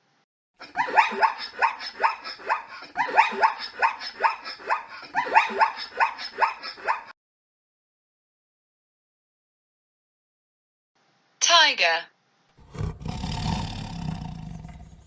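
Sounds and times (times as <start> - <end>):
zebra barking yips: 0.7 - 7.1.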